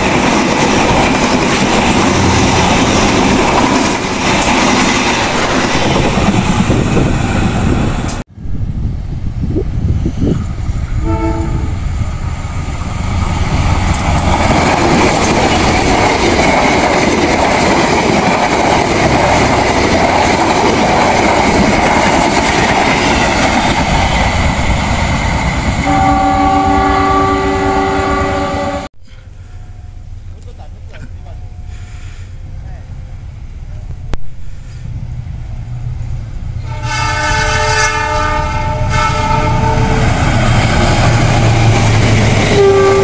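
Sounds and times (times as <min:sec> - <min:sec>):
train wheels rushing on rails: 0:00.0 - 0:43.0
multi-tone train horn blast: 0:11.0 - 0:11.8, 0:25.8 - 0:28.9, 0:36.6 - 0:40.3, 0:42.4 - 0:43.0
train horn: 0:11.0 - 0:11.8, 0:25.8 - 0:28.9, 0:36.6 - 0:40.2, 0:42.4 - 0:43.0.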